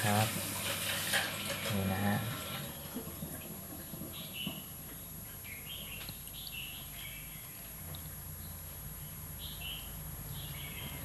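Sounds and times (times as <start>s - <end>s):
small birds chirping: 2.7s - 11.0s.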